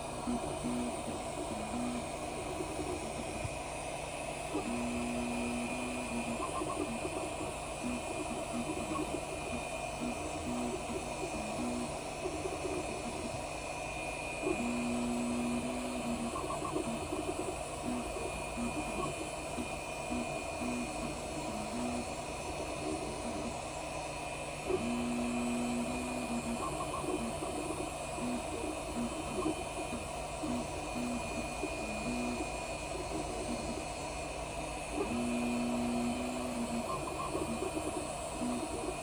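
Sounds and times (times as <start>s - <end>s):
cooling fans hissing: 0.0s - 39.0s
stepper motors whining: 14.1s - 23.7s, 24.6s - 39.0s.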